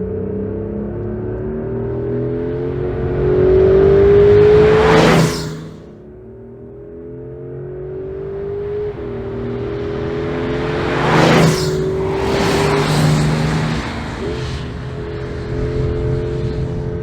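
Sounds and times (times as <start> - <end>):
car engine accelerating: 0.0 - 17.0
loud rush of noise: 4.3 - 5.9.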